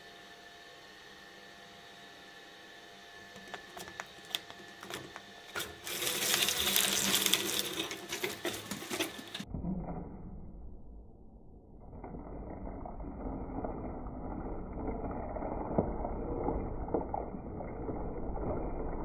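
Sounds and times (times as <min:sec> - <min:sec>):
shredder running: 0:00.0 - 0:09.5
shredder crunching material: 0:03.3 - 0:09.5.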